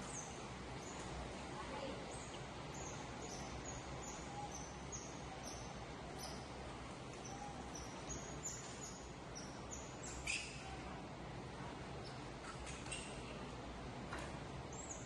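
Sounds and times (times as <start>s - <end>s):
small birds chirping: 0.0s - 11.0s, 14.7s - 15.0s
steady outdoor hiss: 0.0s - 15.0s.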